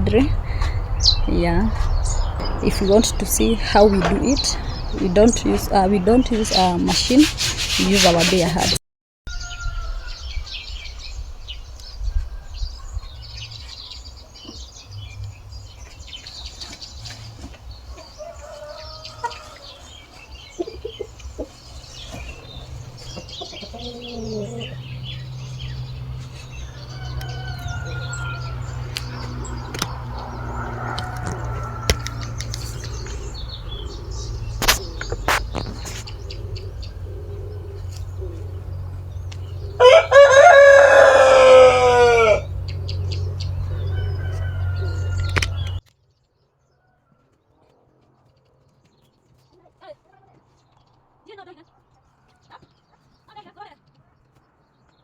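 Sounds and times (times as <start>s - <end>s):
steady low rumble: 0.0s - 7.5s, 19.9s - 45.8s
chickens clucking: 0.0s - 8.8s, 12.2s - 45.8s.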